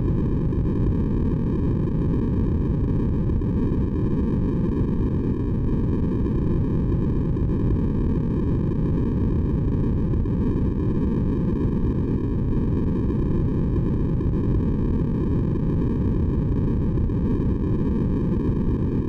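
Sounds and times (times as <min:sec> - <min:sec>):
deep white noise: 0:00.0 - 0:19.0.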